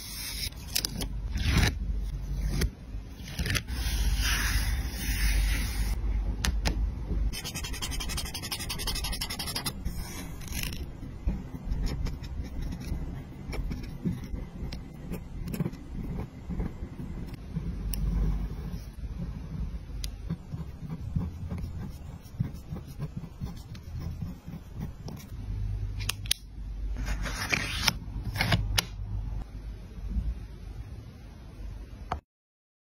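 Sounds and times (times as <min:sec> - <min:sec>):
paper scraping and scratching: 0:00.0 - 0:06.0, 0:07.3 - 0:17.4, 0:27.0 - 0:28.6.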